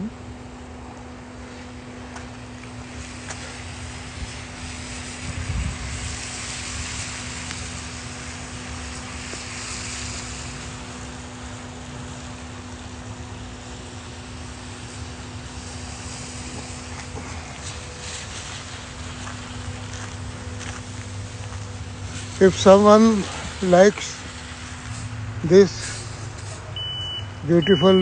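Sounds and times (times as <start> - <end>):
low hum: 0.0 - 28.0
outdoor rumble and hiss: 0.0 - 28.0.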